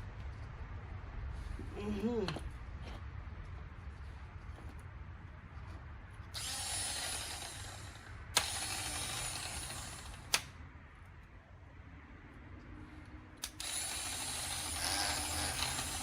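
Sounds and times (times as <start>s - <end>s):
mechanical whirring: 6.4s - 10.5s, 13.4s - 16.0s
sharp mechanical click: 6.4s - 10.6s, 13.4s - 16.0s.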